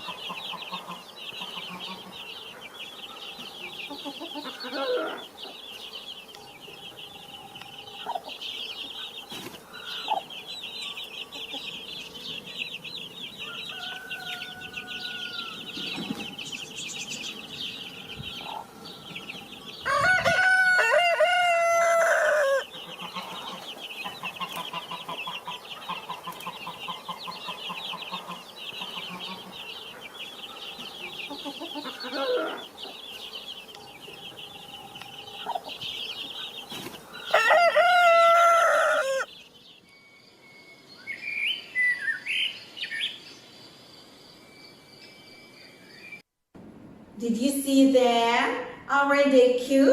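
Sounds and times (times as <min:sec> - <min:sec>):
hen clucking: 0:00.0 - 0:05.6, 0:07.5 - 0:16.5, 0:17.4 - 0:39.3
chicks peeping: 0:00.0 - 0:39.9
rooster crowing: 0:13.2 - 0:16.5, 0:17.8 - 0:23.5, 0:28.2 - 0:32.8, 0:37.2 - 0:39.4.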